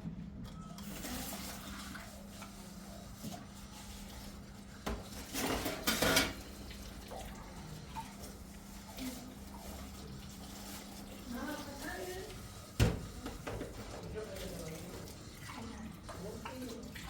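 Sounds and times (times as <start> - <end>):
dishes and cutlery clattering: 4.9 - 6.5.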